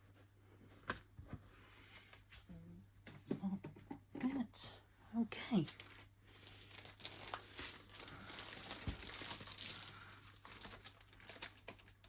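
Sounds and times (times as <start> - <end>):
canvas and plastic film rustling: 5.6 - 12.0.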